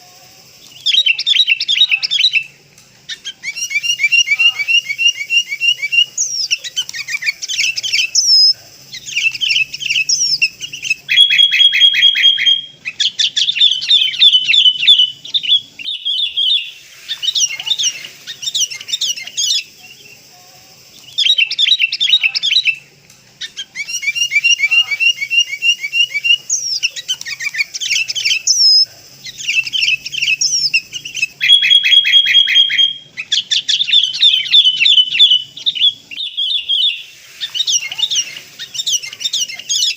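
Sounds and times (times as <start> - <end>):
bulbuls calling in noisy chorus: 0.0 - 39.9.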